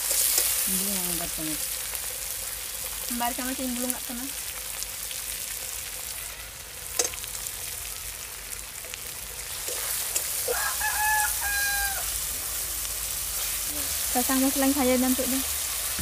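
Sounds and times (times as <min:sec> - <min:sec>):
ladle stirring in metal pan: 0:00.0 - 0:00.6, 0:08.8 - 0:10.6
vegetables sizzling in hot oil: 0:00.0 - 0:16.0
rooster crowing: 0:10.4 - 0:12.2.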